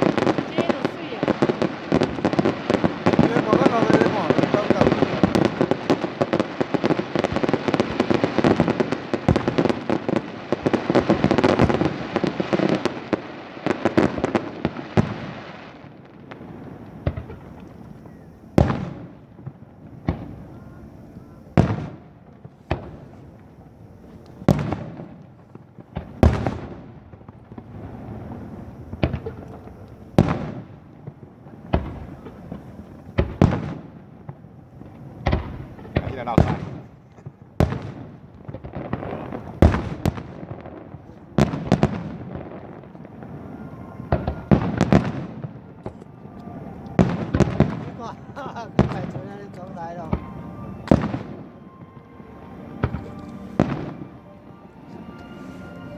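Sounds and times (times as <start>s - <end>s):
fireworks crackling bangs: 0.0s - 55.9s
loud firework bangs: 0.0s - 55.9s.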